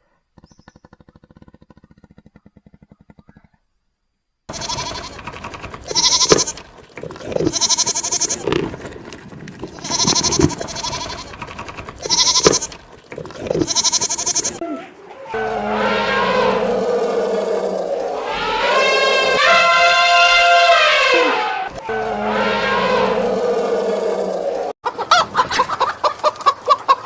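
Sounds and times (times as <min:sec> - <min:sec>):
animal wavering calls: 0:04.5 - 0:24.7
steadier sound: 0:15.3 - 0:20.6.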